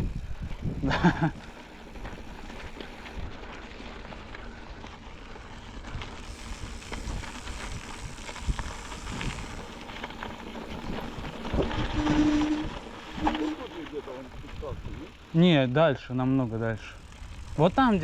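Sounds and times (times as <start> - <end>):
wind noise on microphone: 0.0 - 1.4, 5.8 - 15.1
rough rolling noise on track: 0.0 - 18.0.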